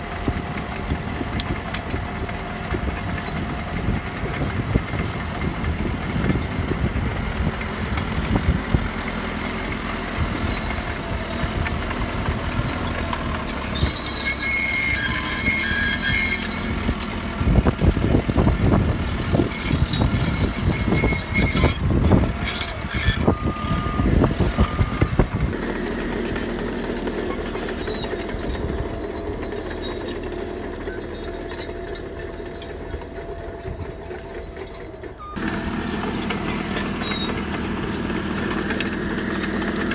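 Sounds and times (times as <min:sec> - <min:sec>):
bulldozer diesel engine: 0:00.0 - 0:39.9
track clatter: 0:00.0 - 0:39.9
high squeal: 0:09.0 - 0:17.1, 0:19.3 - 0:39.8
gravel scraping under blade: 0:10.6 - 0:24.8.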